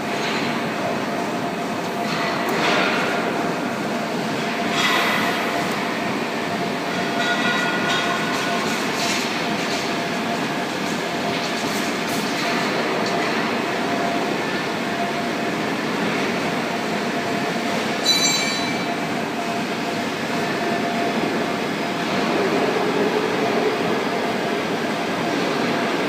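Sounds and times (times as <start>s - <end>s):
machinery rumbling hiss: 4.7s - 6.8s
high-pitched ringing chirp: 18.0s - 19.0s.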